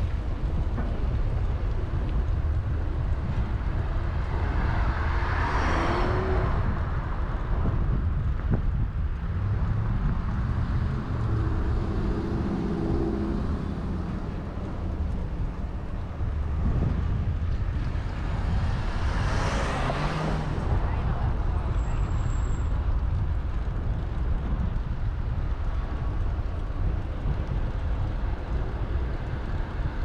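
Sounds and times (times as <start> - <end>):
road noise: 0.0 - 30.0
wind on microphone: 0.0 - 30.0
motor vehicle passing: 4.1 - 7.3, 9.2 - 21.7.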